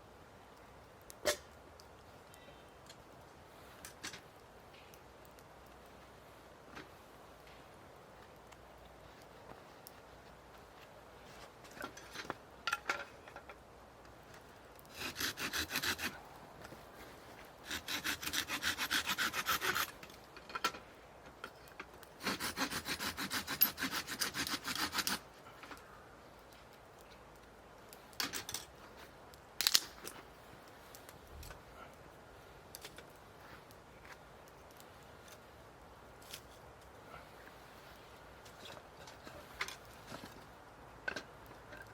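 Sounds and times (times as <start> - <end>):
hand saw cutting wood: 14.9 - 16.2, 17.6 - 20.0, 22.2 - 25.2.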